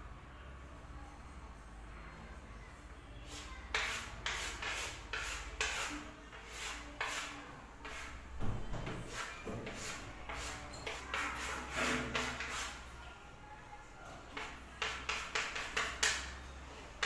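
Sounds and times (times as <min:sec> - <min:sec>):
chalk scratching on chalkboard: 0:03.2 - 0:12.9, 0:14.3 - 0:17.0.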